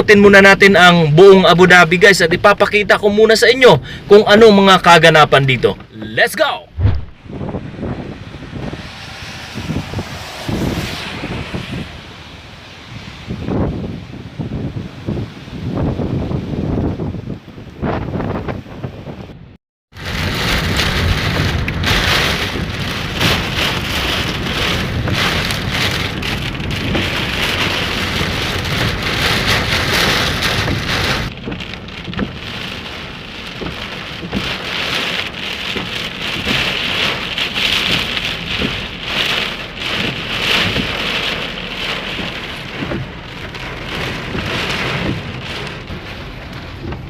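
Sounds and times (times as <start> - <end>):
heavy rain pelting: 0.0 - 17.0, 19.9 - 47.0
low wind rumble: 0.0 - 47.0.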